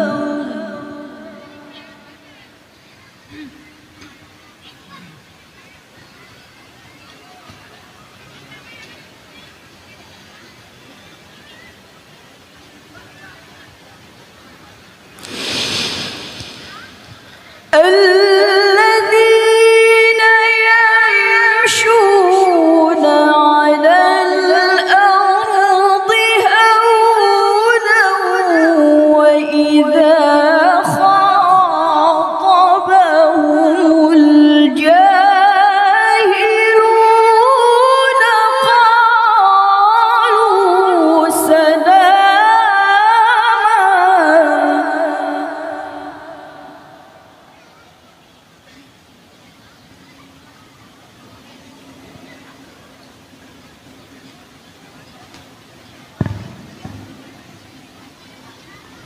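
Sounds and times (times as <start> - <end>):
woman reciting melodically: 0.0 - 2.3, 17.6 - 47.3
brief rush of noise: 15.2 - 17.7.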